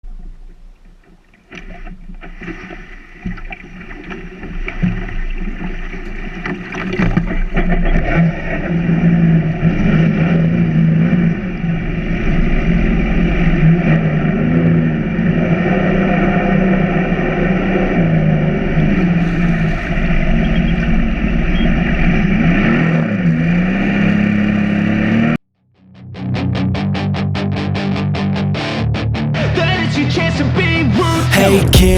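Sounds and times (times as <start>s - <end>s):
watercraft engine running: 0.1s - 25.4s.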